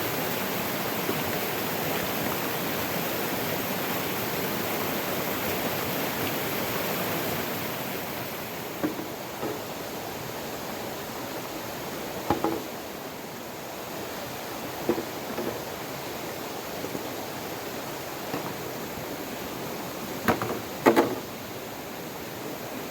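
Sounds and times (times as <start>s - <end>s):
river water rushing: 0.0s - 22.9s
soft knocks: 8.8s - 9.6s, 12.3s - 12.7s, 14.9s - 15.6s.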